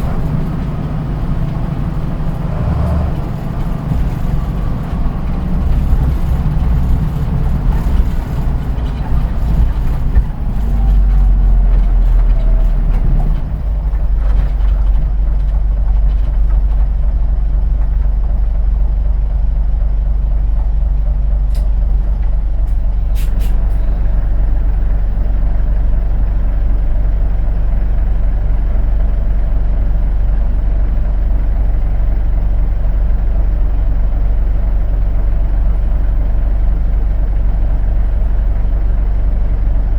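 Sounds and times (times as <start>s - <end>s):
diesel engine idling: 0.0s - 39.9s
air brake hisses: 23.1s - 23.9s.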